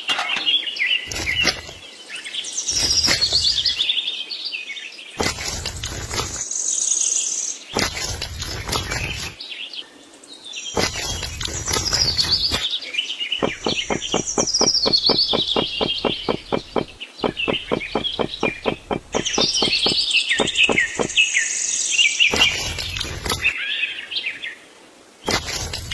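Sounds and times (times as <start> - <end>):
birds chirping and calling: 0.0 - 9.8, 10.4 - 24.5, 25.2 - 25.9
rapid sharp clicks: 13.4 - 21.2.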